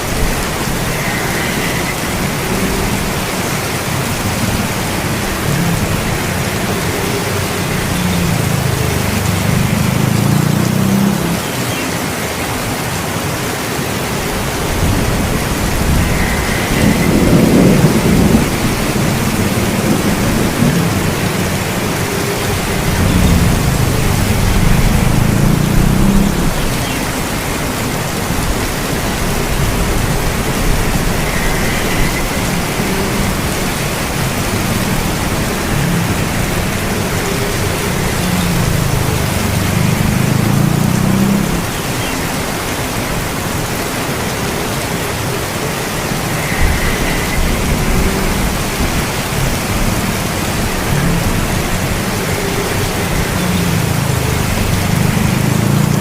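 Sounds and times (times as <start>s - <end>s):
heavy rain falling: 0.0s - 56.0s
low rolling thunder: 14.4s - 41.7s, 45.8s - 52.1s.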